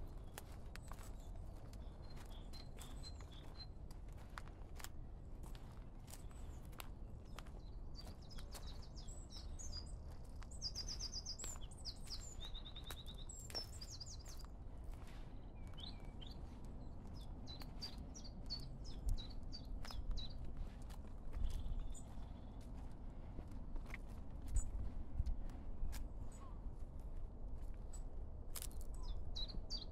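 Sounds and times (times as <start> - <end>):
songbird singing trills: 0.1 - 3.8, 6.2 - 22.8, 28.6 - 29.9.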